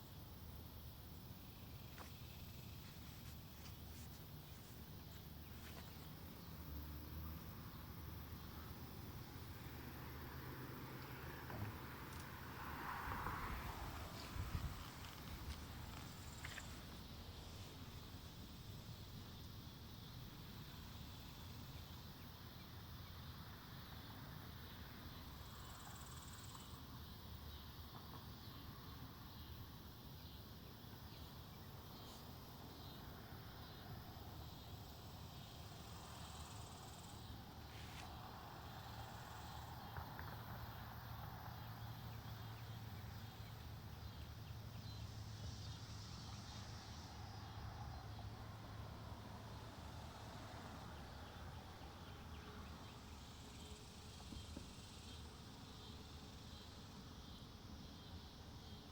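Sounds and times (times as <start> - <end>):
high insect buzz: 0.0 - 22.6
low rumble of wind: 0.0 - 24.0.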